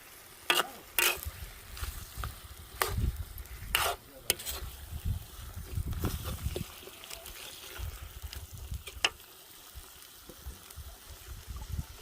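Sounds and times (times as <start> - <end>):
spoon scraping a pot: 0.5 - 1.3, 3.7 - 4.7.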